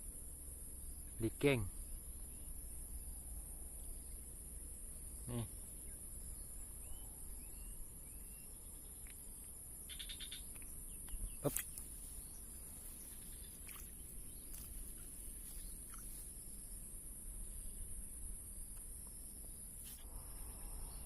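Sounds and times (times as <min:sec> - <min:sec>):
rising bird chirps: 0:05.1 - 0:09.1, 0:09.9 - 0:16.8.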